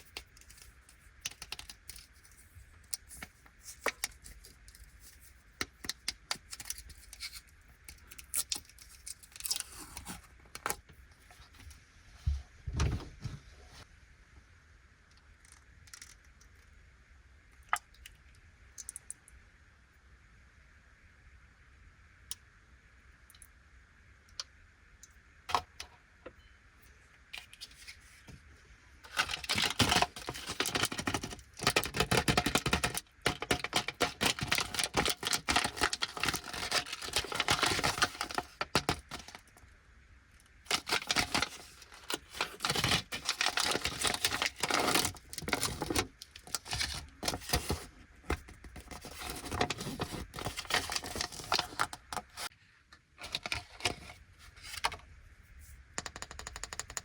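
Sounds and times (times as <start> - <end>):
plastic wrapper crinkling and tearing: 0.0 - 10.8, 29.0 - 39.5, 40.6 - 52.5.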